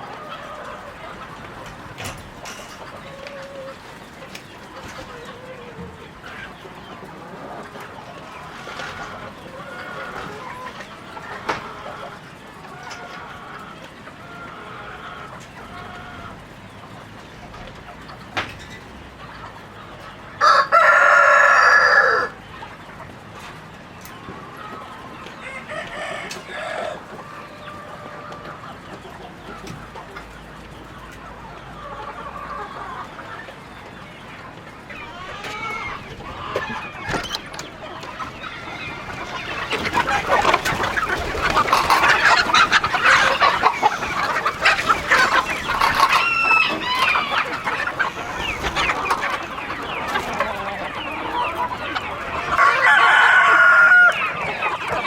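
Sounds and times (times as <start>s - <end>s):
chickens clucking: 0.0s - 55.0s
rooster crowing: 20.4s - 22.3s, 52.5s - 54.4s.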